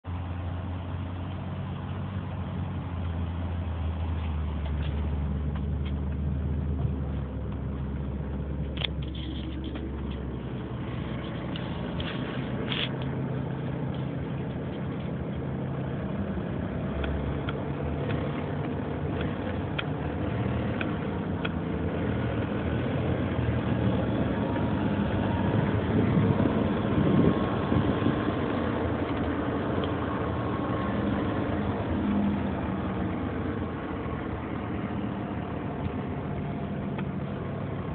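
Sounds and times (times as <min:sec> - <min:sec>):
car engine running: 0:00.0 - 0:37.9
engine clicking and tapping: 0:04.1 - 0:15.6, 0:16.9 - 0:22.6.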